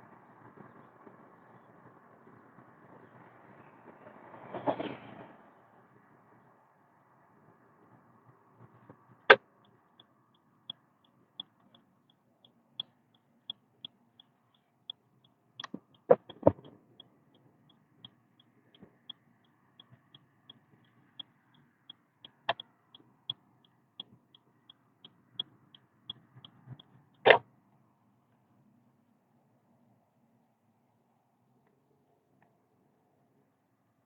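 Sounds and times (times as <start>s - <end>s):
turn signal ticking: 8.9s - 27.4s.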